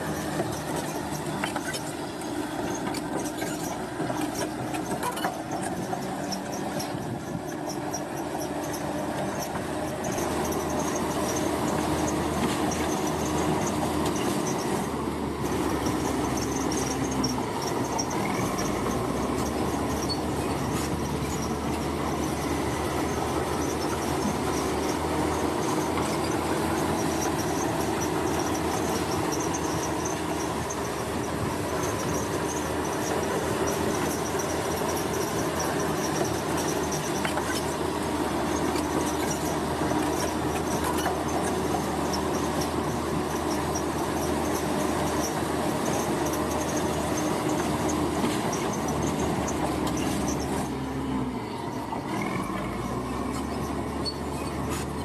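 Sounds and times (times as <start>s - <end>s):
construction machinery rumbling: 0.0s - 55.0s
faint squeal: 48.5s - 54.9s.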